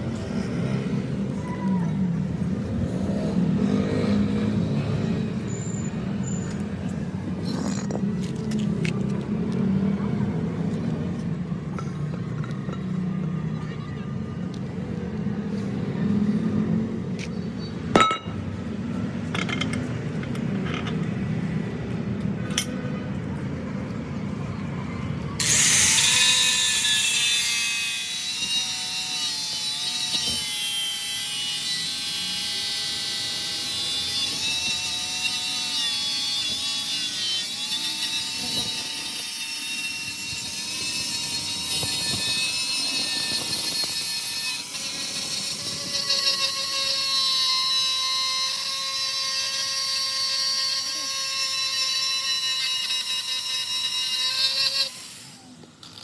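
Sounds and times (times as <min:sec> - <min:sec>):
hissing metal cutting: 0:25.4 - 0:56.0.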